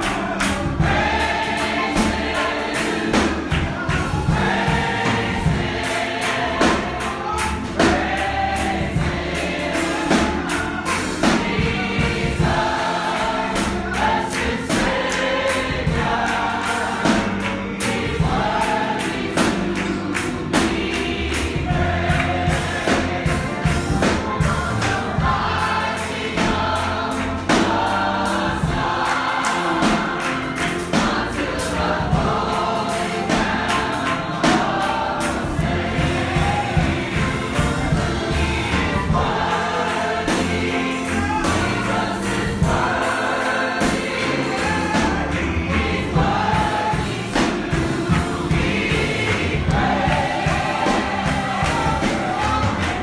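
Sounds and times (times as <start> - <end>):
congregation singing gospel song: 0.0 - 53.0
percussive beat: 0.0 - 53.0.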